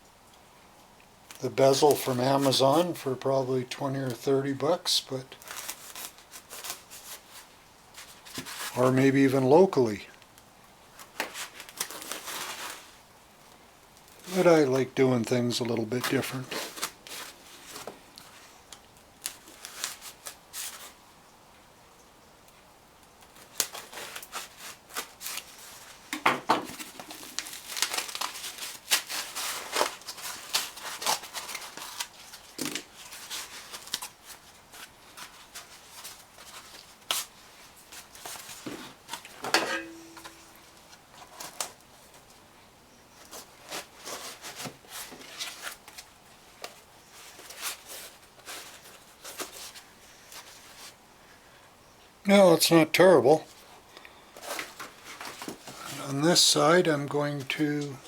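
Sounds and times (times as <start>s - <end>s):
handling knocks: 39.4s - 40.6s.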